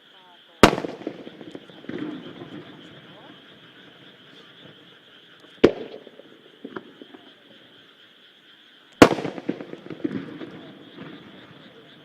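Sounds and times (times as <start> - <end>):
chorus of calling animals: 0.0 - 12.0
firework shells bursting: 0.6 - 4.8, 5.4 - 7.3, 9.0 - 11.9.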